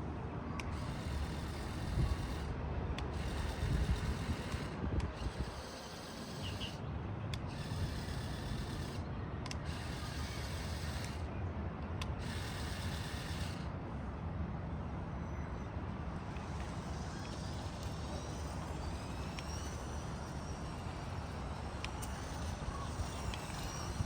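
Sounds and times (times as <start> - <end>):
toy motors rumbling: 0.6 - 11.3, 12.0 - 13.7, 16.0 - 24.0.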